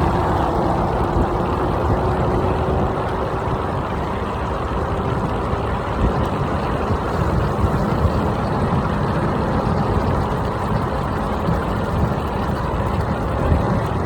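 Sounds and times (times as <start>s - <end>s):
road noise: 0.0s - 10.4s
wind buffeting microphone: 0.0s - 14.0s.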